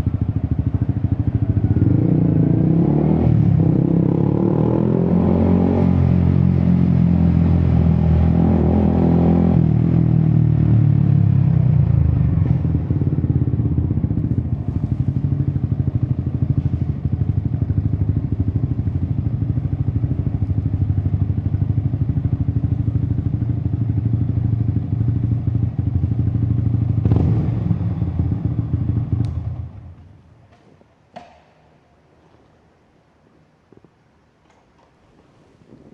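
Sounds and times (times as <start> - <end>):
motorcycle engine idling: 0.0 - 2.0, 12.0 - 27.0.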